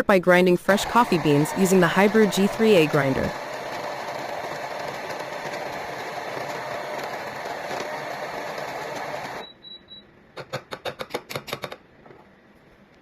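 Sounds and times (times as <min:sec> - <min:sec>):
electric coffee grinder grinding: 0:00.7 - 0:09.4.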